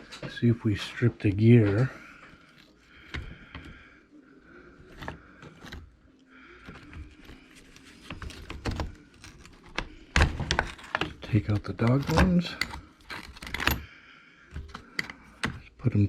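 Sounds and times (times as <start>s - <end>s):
small parts clicking and scraping: 4.8s - 15.8s.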